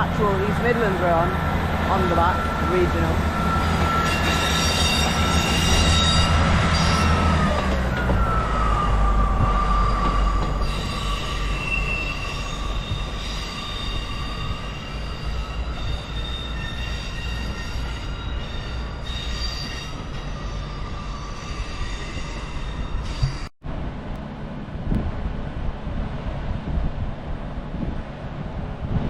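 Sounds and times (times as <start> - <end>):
train rumble: 0.0 - 29.0
train wheels squealing: 2.4 - 23.5.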